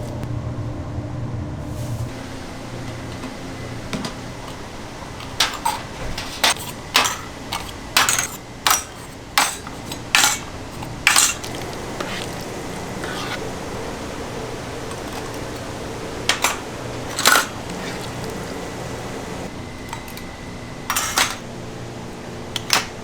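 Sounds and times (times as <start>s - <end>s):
steady low hum: 0.0s - 22.6s
pans and utensils clattering: 2.8s - 20.3s, 20.9s - 21.5s.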